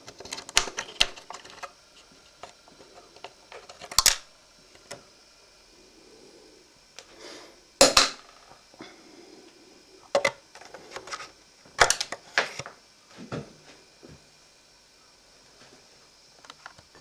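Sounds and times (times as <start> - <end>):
small hard parts clicking and clattering: 0.0 - 5.0, 7.8 - 8.6.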